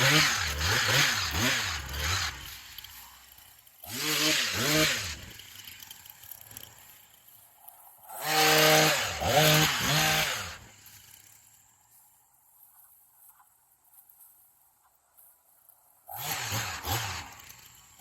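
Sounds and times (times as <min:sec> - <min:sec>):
pole saw running: 0:00.0 - 0:11.8, 0:16.1 - 0:18.0.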